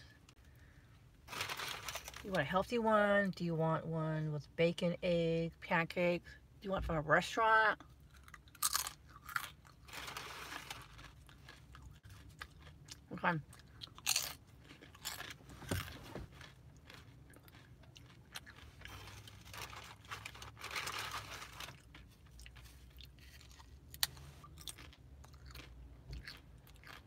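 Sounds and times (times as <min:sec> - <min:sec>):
chewing crisp chip: 0:08.0 - 0:27.0.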